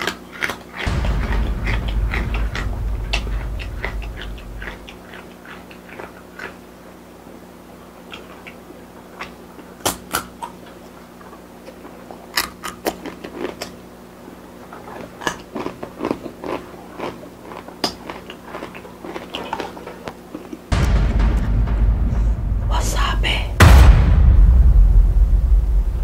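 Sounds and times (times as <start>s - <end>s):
person crunching chips: 0.0s - 0.9s, 11.7s - 13.8s, 14.7s - 20.7s
faint steady hum: 0.0s - 26.0s.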